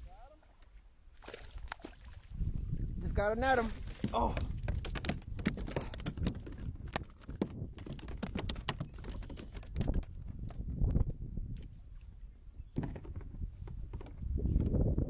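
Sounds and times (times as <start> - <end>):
knocks and taps on a kayak: 3.9 - 11.7, 12.7 - 14.8.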